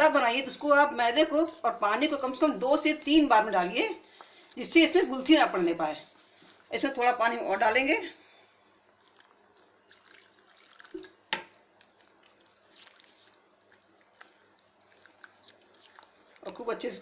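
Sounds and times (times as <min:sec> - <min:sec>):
water dripping into batter: 0:08.8 - 0:17.0.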